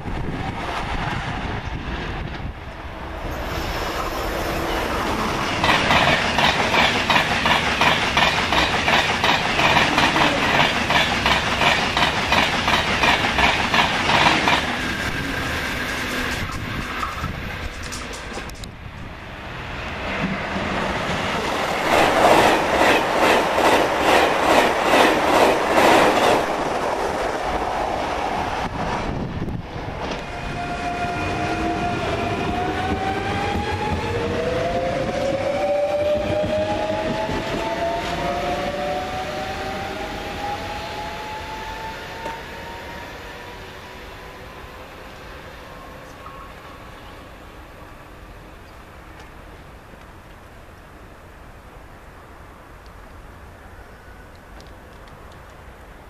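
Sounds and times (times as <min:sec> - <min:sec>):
train wheel clatter: 0:04.9 - 0:18.8.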